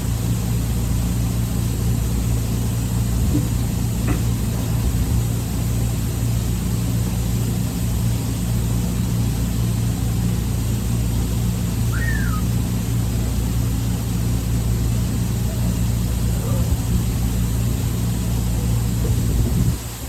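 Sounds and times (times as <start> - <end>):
low mechanical engine drone: 0.0 - 20.0
brief high squeak: 11.9 - 12.5.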